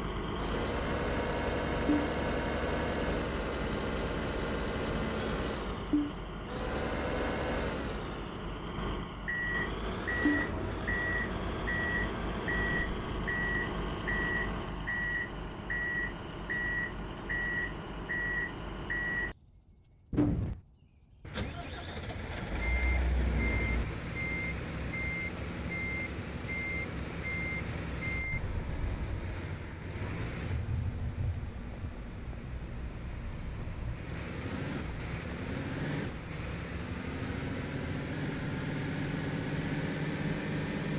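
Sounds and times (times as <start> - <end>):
engine running: 0.0 - 19.3, 21.3 - 40.9
reversing alarms beeping: 9.3 - 19.3.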